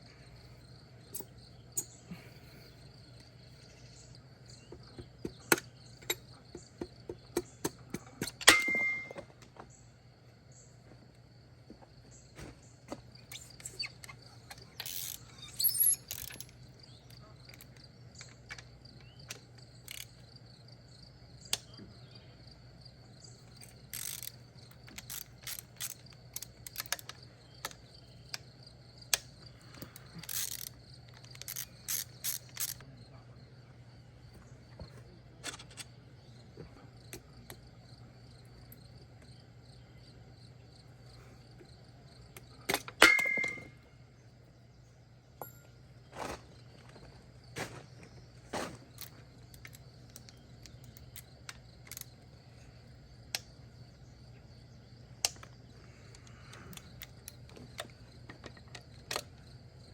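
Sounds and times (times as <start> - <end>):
crickets chirping: 0.0 - 59.9
hand tools clicking on metal: 7.2 - 9.2, 13.8 - 16.6, 23.5 - 28.4, 29.1 - 32.8
ratchet ratcheting: 14.6 - 16.6, 19.8 - 20.2, 23.5 - 27.8, 29.7 - 32.8.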